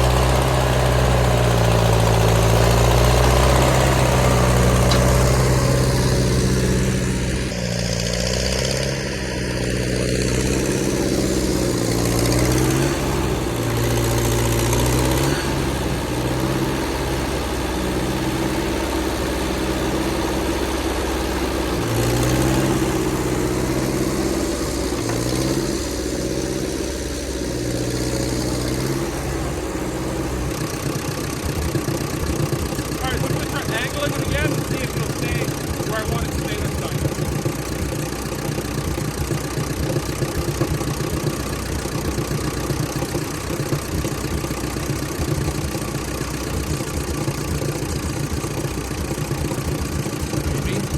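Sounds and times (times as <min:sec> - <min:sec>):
tractor engine running: 0:00.0 - 0:50.9.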